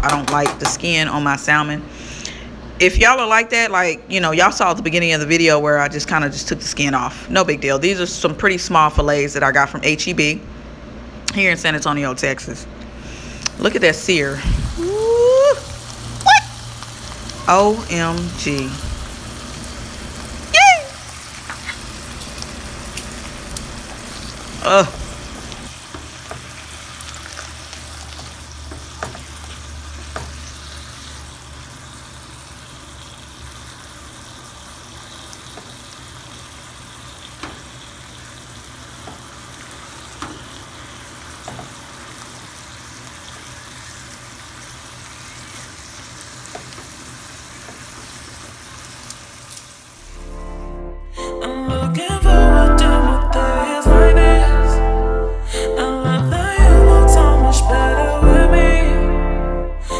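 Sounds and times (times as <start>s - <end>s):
fish sizzling in a pan: 14.7s - 50.0s.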